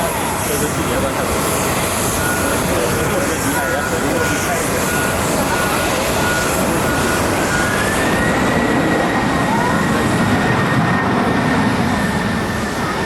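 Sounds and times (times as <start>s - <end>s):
jet airliner engines: 0.0s - 13.0s.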